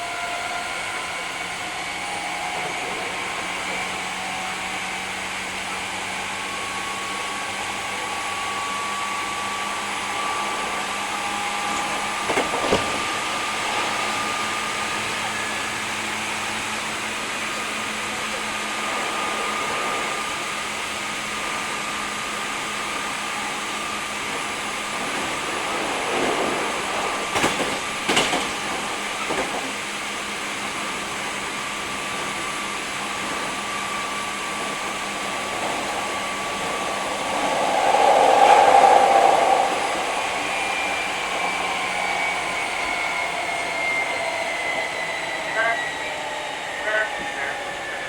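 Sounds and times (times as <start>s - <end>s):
train motor and wheel hum: 0.0s - 48.0s
wheels clicking over rail joints: 25.1s - 29.8s
falling whine: 32.4s - 48.0s
loud rush: 33.9s - 43.2s.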